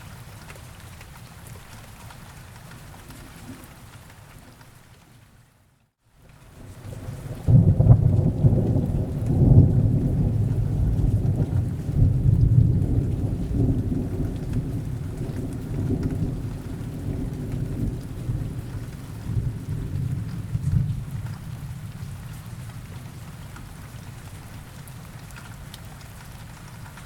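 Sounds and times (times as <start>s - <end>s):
steady rain: 0.0s - 27.0s
rolling thunder: 6.7s - 22.3s.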